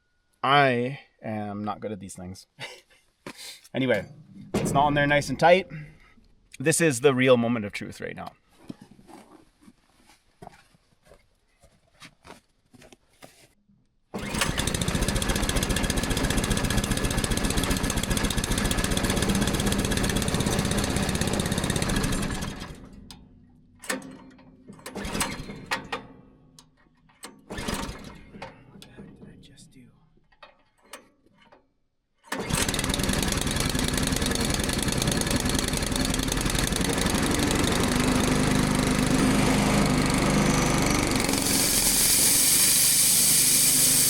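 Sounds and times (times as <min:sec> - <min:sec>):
small engine running: 0:14.2 - 0:23.0, 0:32.3 - 0:44.0.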